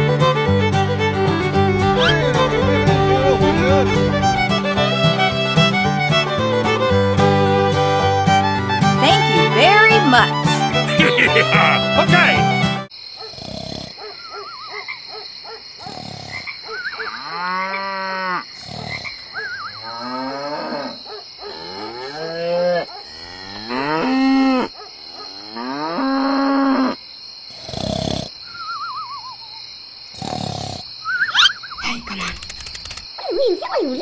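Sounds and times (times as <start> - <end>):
cattle mooing: 1.6 - 4.6
high-pitched insect chirring: 31.2 - 34.0.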